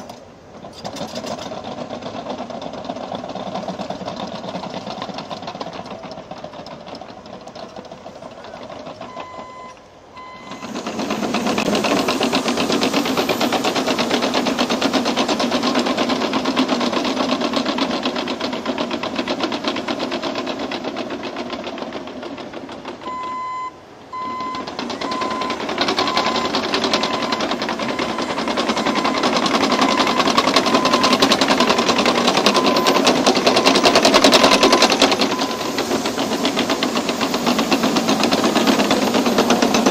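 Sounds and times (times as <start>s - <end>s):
bulldozer diesel engine under load: 0.0s - 39.9s
steel tracks clattering: 0.0s - 39.9s
reversing alarm beeping: 8.9s - 16.1s, 23.0s - 39.9s.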